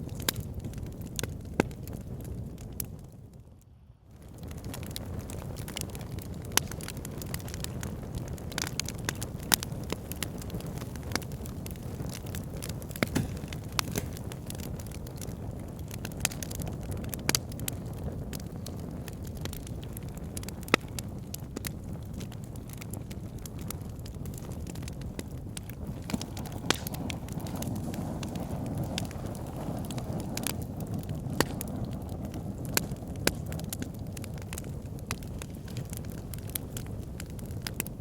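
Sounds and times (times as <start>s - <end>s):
fire pit crackling: 0.0s - 38.0s.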